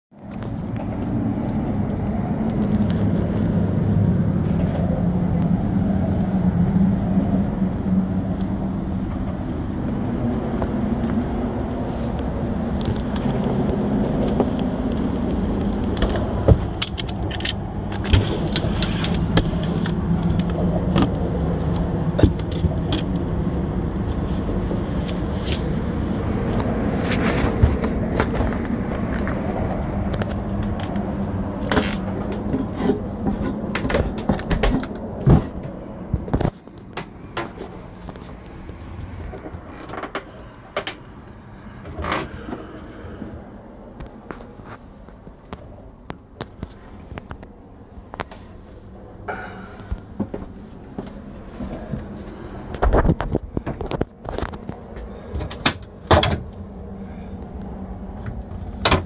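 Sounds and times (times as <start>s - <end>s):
engine droning: 0.1s - 59.0s
clicks knocks and rattles: 12.7s - 23.3s.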